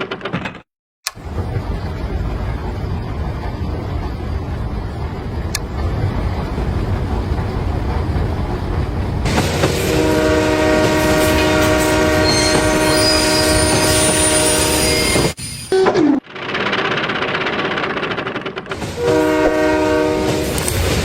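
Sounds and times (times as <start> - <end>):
train rumbling: 1.1 - 21.0
train horn: 9.6 - 15.2, 19.0 - 20.7.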